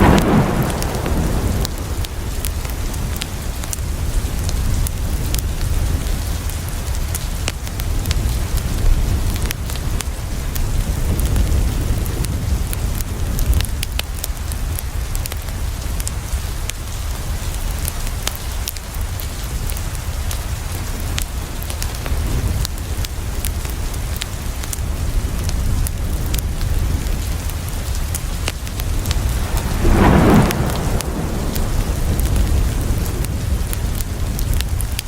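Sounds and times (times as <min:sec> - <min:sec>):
rain on a window: 0:00.0 - 0:35.0
wood fire popping and crackling: 0:00.0 - 0:35.0
low rumble: 0:28.3 - 0:34.4.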